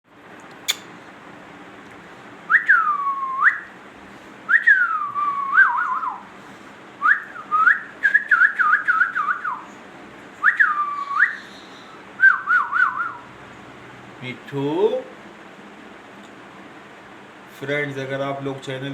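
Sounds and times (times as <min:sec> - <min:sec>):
parrot whistling: 0:00.7 - 0:00.9, 0:07.0 - 0:09.6, 0:10.4 - 0:13.2.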